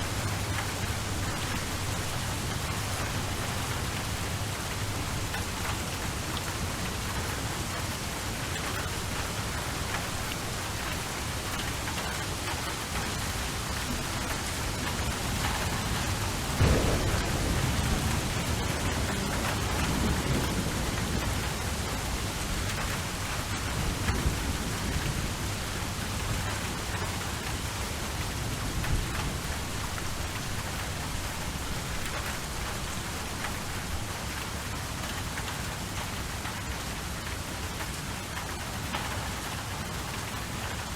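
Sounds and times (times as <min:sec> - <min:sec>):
thunder rumbling: 0:00.0 - 0:07.1, 0:13.8 - 0:26.7
steady rain: 0:00.0 - 0:40.9.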